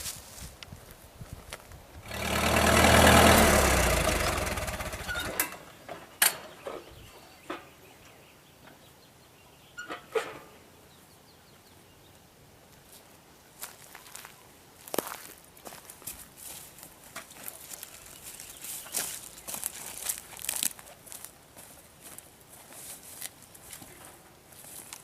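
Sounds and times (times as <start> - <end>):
tractor engine running: 2.0 - 7.0.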